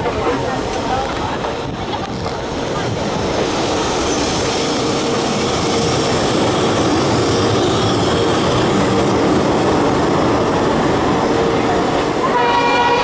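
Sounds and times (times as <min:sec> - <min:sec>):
train locomotive droning: 0:00.0 - 0:13.0.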